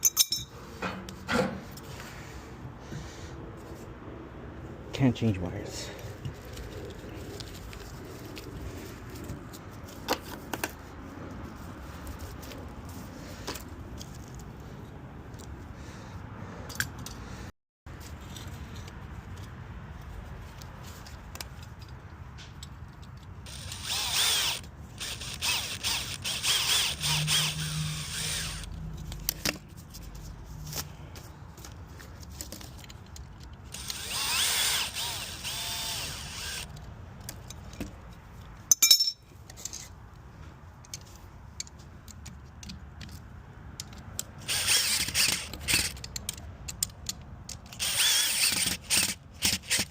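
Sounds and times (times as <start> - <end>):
power drill driving fasteners: 23.4 - 28.7, 33.6 - 36.8, 44.4 - 46.8, 47.5 - 49.9.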